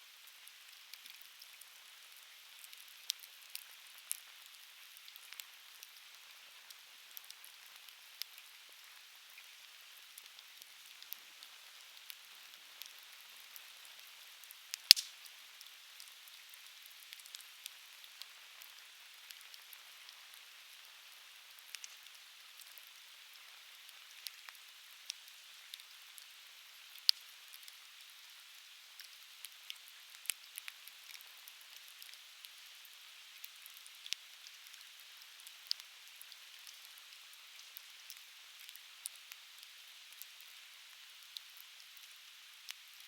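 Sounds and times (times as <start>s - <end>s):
campfire crackling and popping: 0.3s - 20.8s, 21.5s - 26.3s, 26.9s - 27.8s, 33.4s - 36.9s.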